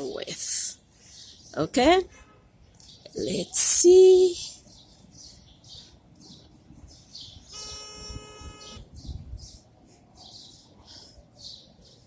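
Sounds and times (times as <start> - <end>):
bird chirping: 4.4 - 12.0.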